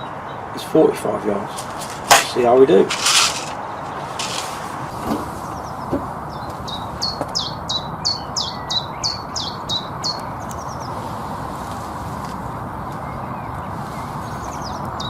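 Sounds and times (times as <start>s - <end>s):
songbird singing high notes: 5.4s - 10.9s.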